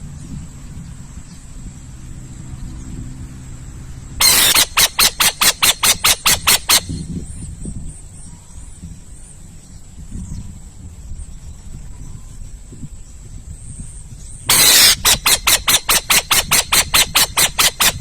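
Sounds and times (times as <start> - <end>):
owl screeching: 4.2 - 7.0, 14.5 - 18.0.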